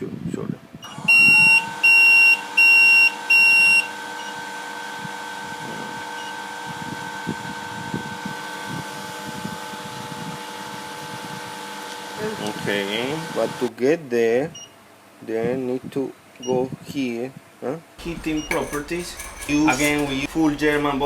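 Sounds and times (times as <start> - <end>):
rework station beeping: 18.0 - 21.0.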